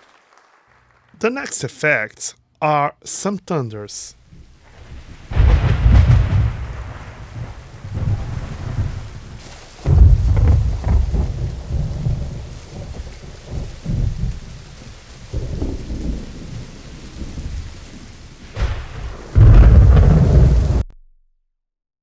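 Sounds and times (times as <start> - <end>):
thunder rumbling: 4.3 - 20.8.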